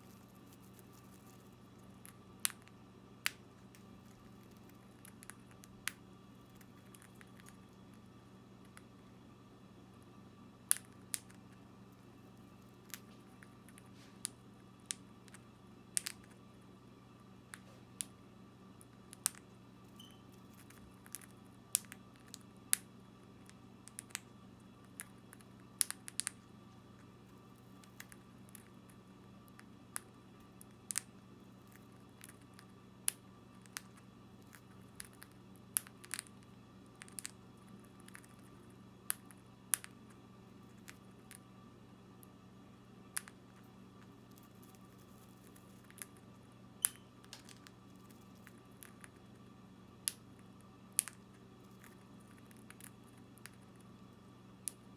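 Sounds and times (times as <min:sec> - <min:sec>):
bird cracking seeds: 0:00.0 - 0:07.9
faint steady hum: 0:00.0 - 0:54.9.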